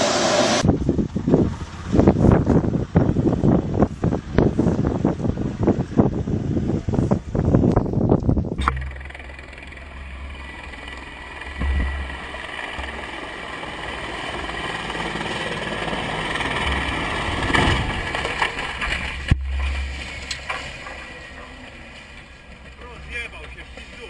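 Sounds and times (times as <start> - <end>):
helicopter rotor rumble: 0.0 - 24.0
sharp knock: 8.6 - 13.0
helicopter turbine whine: 8.6 - 24.0.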